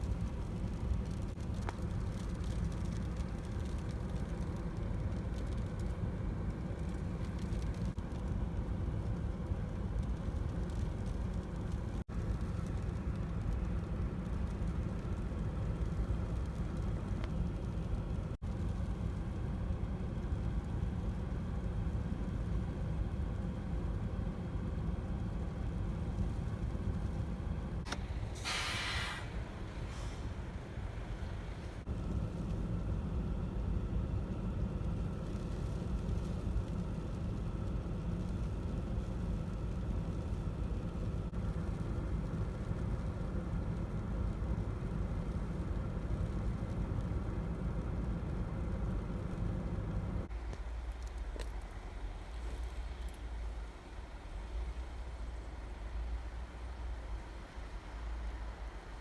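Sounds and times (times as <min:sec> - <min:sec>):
car engine idling: 0:00.0 - 0:55.8
short hiss: 0:27.9 - 0:31.8.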